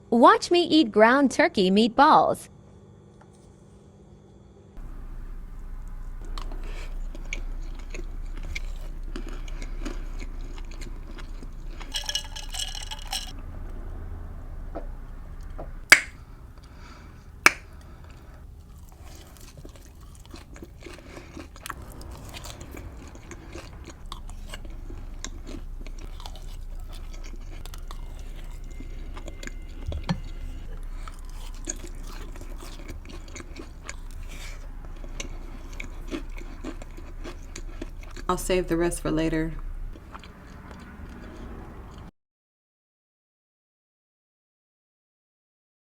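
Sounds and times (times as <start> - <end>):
soft wet chewing: 5.5 - 13.2, 15.4 - 38.7, 39.6 - 42.1.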